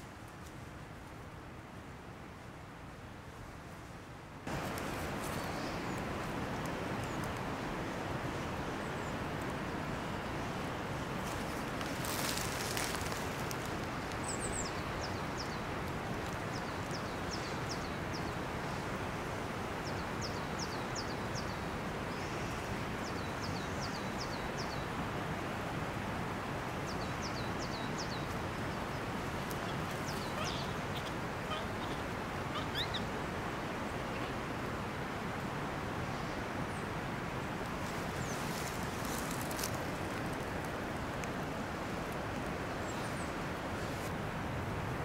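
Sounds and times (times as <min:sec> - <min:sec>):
outdoor background hiss: 0:00.0 - 0:45.0
songbird singing: 0:04.5 - 0:07.4, 0:10.0 - 0:15.7, 0:16.3 - 0:18.8, 0:19.8 - 0:25.0, 0:26.8 - 0:33.2, 0:42.6 - 0:44.0.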